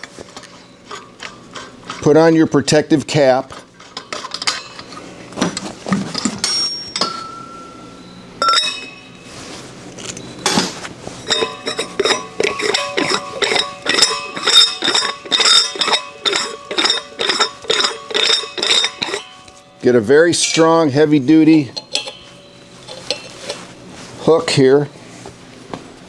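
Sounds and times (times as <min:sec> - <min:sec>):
metal clinking on gas cylinder: 0:03.8 - 0:05.0, 0:05.6 - 0:09.3, 0:10.1 - 0:24.7.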